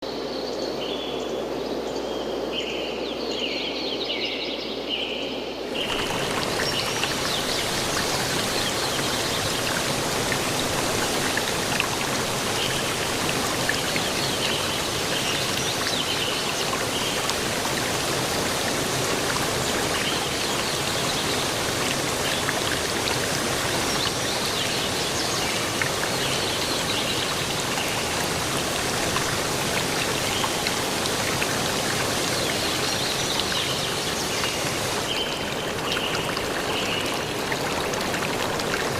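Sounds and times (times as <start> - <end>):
rushing water hiss: 5.6 - 38.9.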